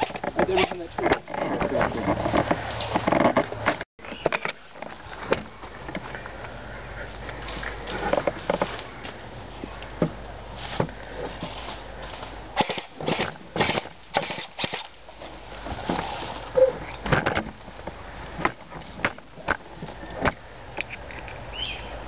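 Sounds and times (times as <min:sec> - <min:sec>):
footsteps through dry leaves: 0:10.4 - 0:12.4.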